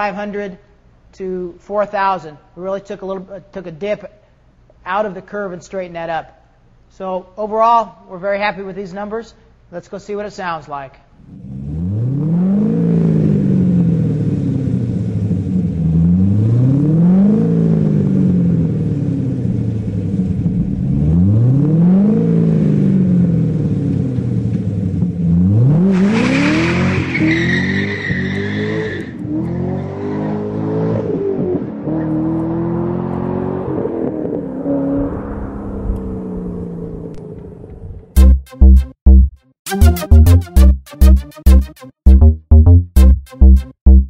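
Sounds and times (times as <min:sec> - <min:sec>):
car engine revving: 0:11.3 - 0:24.3, 0:25.2 - 0:35.0.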